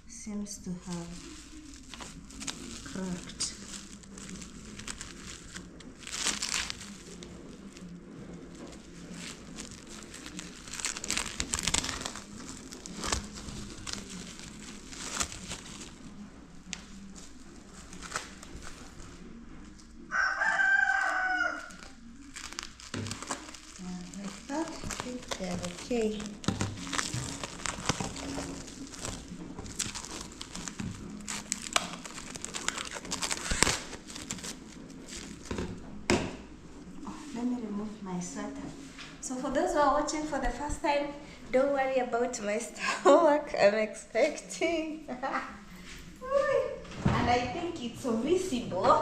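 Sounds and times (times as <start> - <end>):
plastic wrapping crinkling: 0.1 - 37.4.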